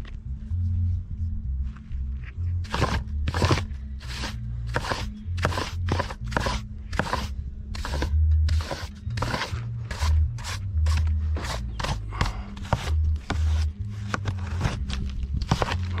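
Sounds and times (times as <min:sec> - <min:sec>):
background music with pulsing bass: 0:00.0 - 0:16.0
hand tool scraping strokes: 0:02.7 - 0:16.0.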